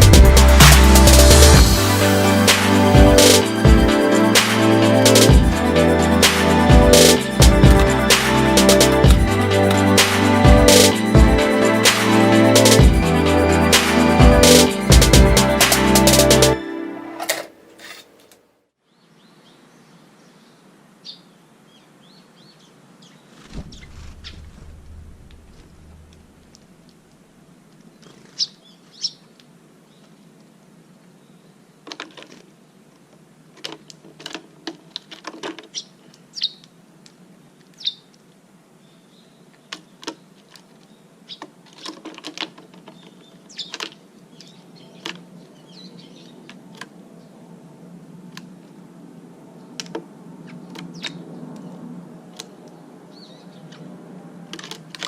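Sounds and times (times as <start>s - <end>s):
small birds chirping: 27.8s - 30.2s, 35.7s - 36.8s, 37.7s - 38.2s, 38.8s - 41.5s, 42.8s - 46.6s.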